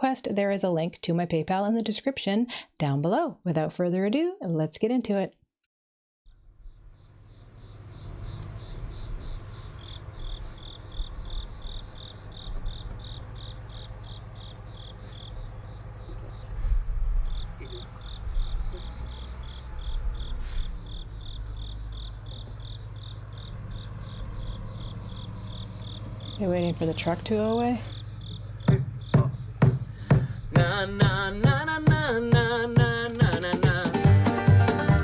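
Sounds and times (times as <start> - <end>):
crickets chirping: 6.3 - 33.0
truck engine rumble: 7.1 - 33.3.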